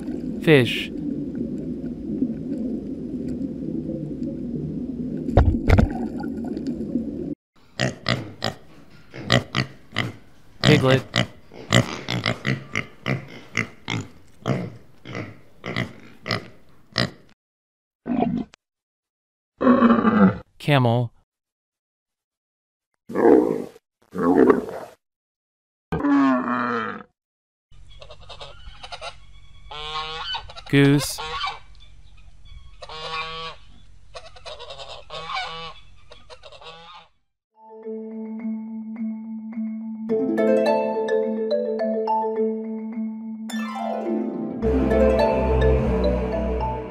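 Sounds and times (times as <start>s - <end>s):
piglets grunting: 7.8s - 17.2s
geese honking: 28.0s - 31.6s, 32.8s - 33.6s, 34.2s - 37.1s.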